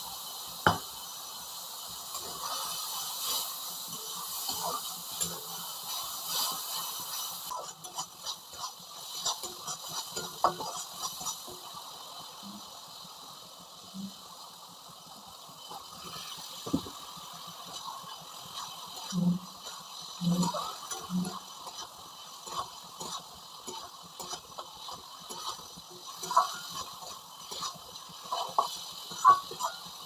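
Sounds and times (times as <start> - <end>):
cooking hiss: 0.0 - 30.0
utensils knocking in a pan: 18.6 - 30.0.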